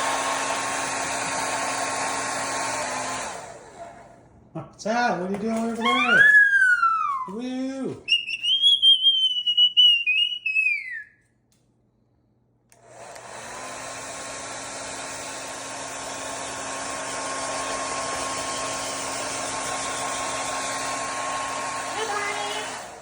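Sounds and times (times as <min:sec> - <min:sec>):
hair dryer running: 0:00.0 - 0:04.2, 0:05.6 - 0:07.4, 0:12.7 - 0:23.0
high whistle-like call: 0:05.8 - 0:07.4, 0:08.1 - 0:11.2.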